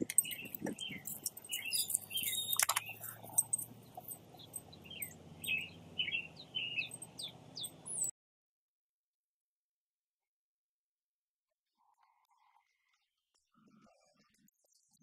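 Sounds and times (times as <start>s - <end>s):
sharp clicks: 0.0s - 5.7s
songbirds chirping: 0.0s - 8.1s.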